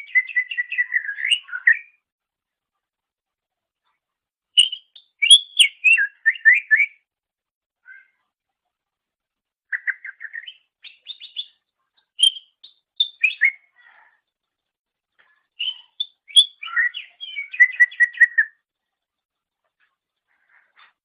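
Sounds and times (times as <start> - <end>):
bird chattering and whistling: 0.0 - 1.9, 4.6 - 7.0, 9.7 - 11.6, 12.2 - 13.8, 15.6 - 18.6.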